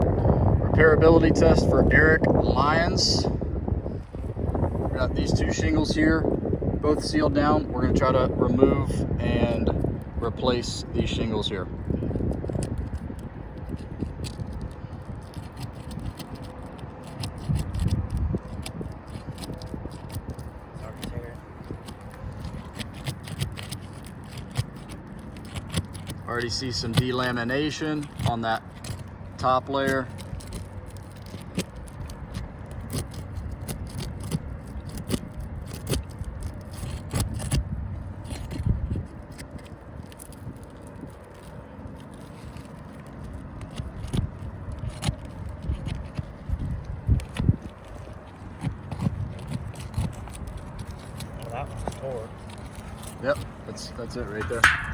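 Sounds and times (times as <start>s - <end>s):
shingles scraping and clicking: 12.0s - 54.9s.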